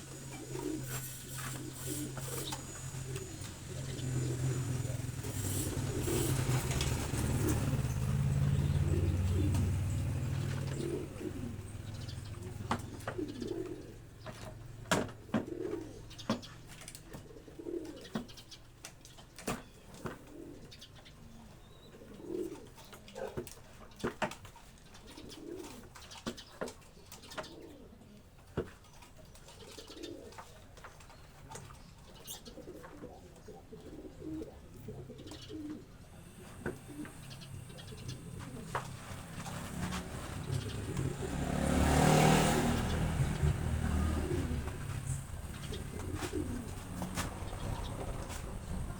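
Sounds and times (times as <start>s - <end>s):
low engine hum: 0.0s - 12.7s, 36.2s - 48.9s
pigeons cooing: 0.0s - 48.9s.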